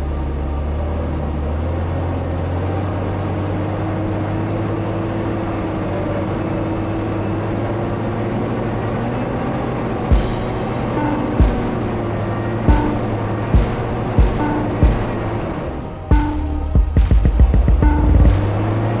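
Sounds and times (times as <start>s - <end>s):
off-road vehicle engine droning: 0.0s - 19.0s
sharp knock: 10.1s - 12.0s, 12.7s - 15.4s, 16.1s - 18.8s.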